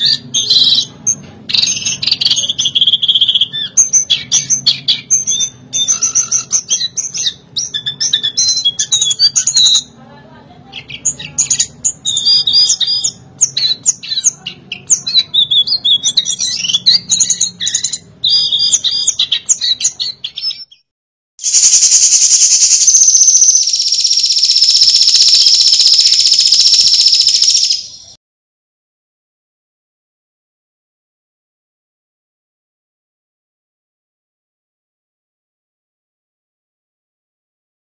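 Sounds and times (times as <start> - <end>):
bird singing high chirping notes: 1.5 - 10.0, 10.8 - 20.8, 21.4 - 28.2.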